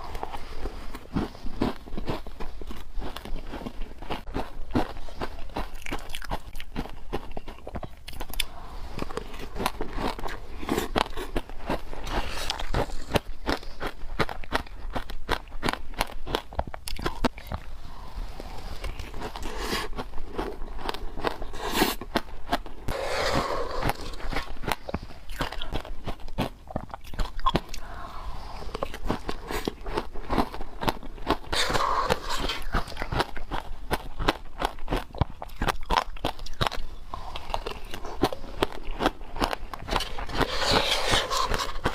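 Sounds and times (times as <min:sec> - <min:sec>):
crunching of frozen ice: 0:00.0 - 0:17.3, 0:18.2 - 0:41.9.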